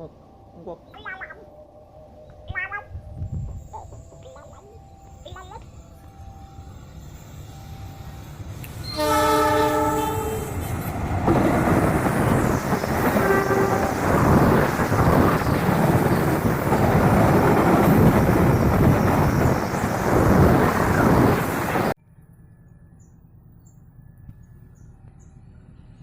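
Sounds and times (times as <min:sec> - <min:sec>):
diesel locomotive engine: 0:00.0 - 0:26.0
locomotive horn blast: 0:07.6 - 0:11.5, 0:12.9 - 0:14.4.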